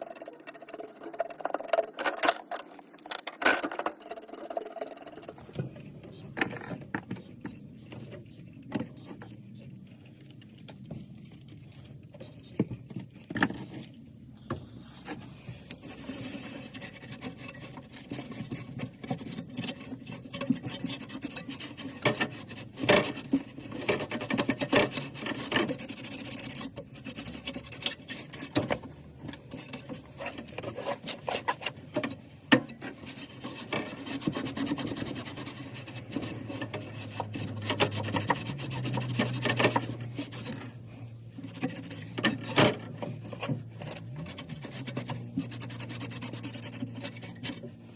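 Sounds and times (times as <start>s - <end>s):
rubbing and scraping: 0.0s - 47.9s.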